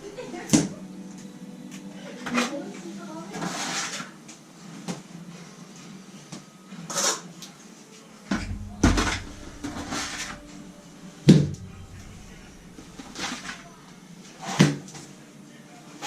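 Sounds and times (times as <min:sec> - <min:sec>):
trowel scraping bucket: 0:03.4 - 0:04.1, 0:08.4 - 0:10.5, 0:11.4 - 0:13.8.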